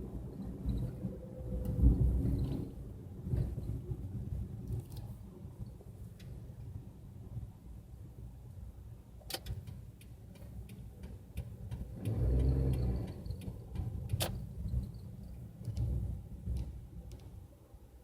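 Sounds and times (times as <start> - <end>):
road and engine rumble: 0.0 - 18.0
sharp clicks: 9.2 - 14.9.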